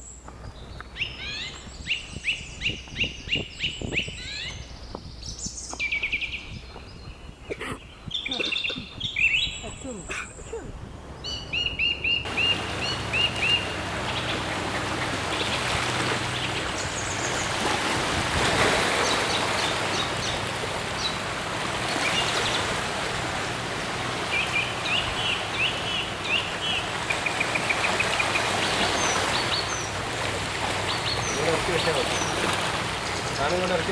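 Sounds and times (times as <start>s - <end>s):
wild birds calling: 0.0s - 33.9s
bird trill: 1.0s - 6.5s, 11.2s - 17.6s
background hiss: 12.3s - 33.9s.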